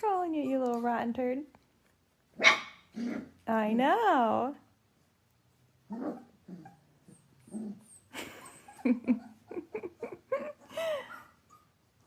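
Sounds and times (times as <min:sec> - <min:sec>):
puppy whining: 0:05.5 - 0:09.7, 0:10.4 - 0:12.0.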